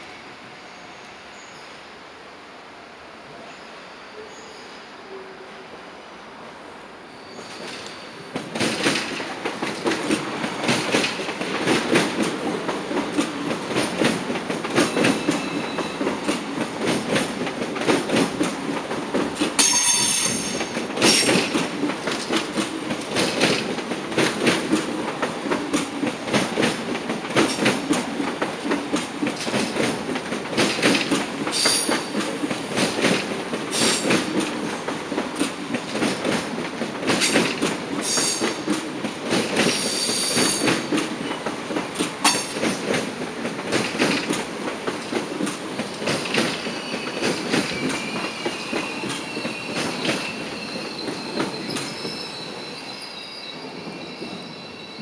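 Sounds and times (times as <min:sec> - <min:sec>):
high wheel squeals: 0:07.1 - 0:08.3, 0:46.6 - 0:55.0.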